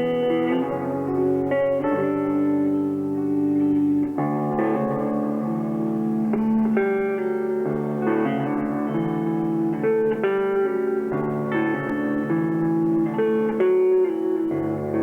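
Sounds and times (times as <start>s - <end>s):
ringing guitar chords: 0.0s - 15.0s.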